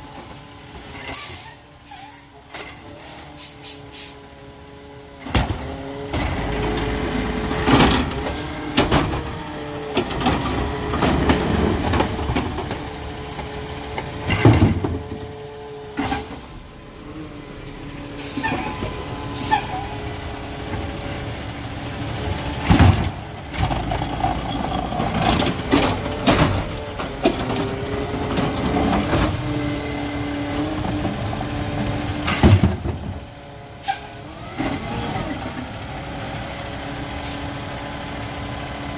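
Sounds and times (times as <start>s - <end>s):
air brake hisses: 3.0s - 4.2s, 18.1s - 19.9s, 33.8s - 34.1s, 37.2s - 37.5s
garbage truck engine revving: 4.8s - 38.9s.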